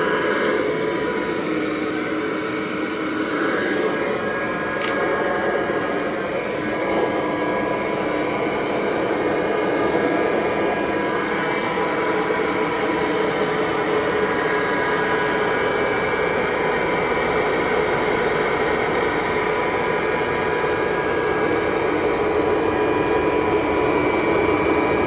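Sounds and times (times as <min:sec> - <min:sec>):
vacuum cleaner running on carpet: 0:00.0 - 0:25.0
brief click: 0:04.8 - 0:05.0.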